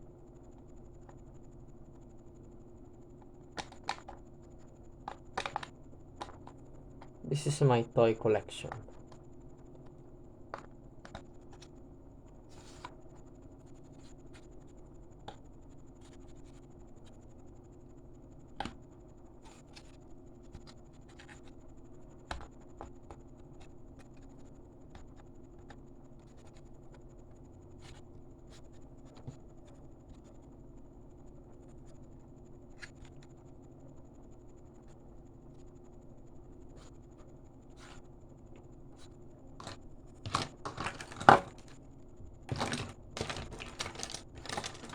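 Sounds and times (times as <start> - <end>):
faint hum with high whine: 0.0 - 44.9
plastic toys clicking and tapping: 39.6 - 41.7, 42.5 - 44.9.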